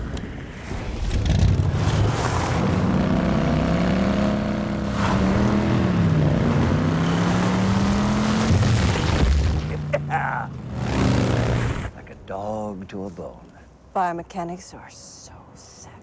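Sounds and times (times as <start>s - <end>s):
quad bike engine revving: 2.8s - 8.7s, 9.7s - 11.9s.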